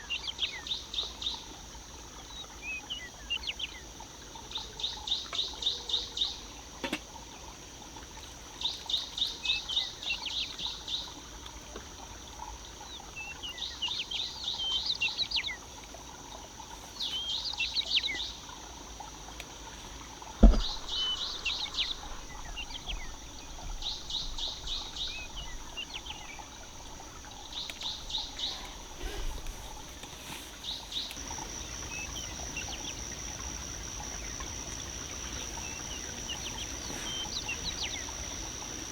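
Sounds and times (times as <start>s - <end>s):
sharp knock: 20.4s - 21.7s
songbird trilling: 20.4s - 38.9s
steady high-pitched hum: 30.9s - 38.9s.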